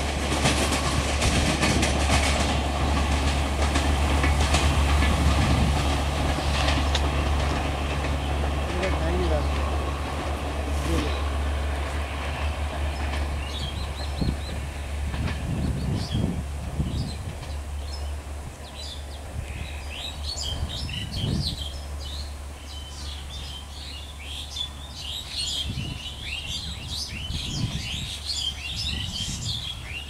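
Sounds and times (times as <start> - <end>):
low rumble of train: 0.0 - 30.0
small birds chirping: 15.5 - 30.0.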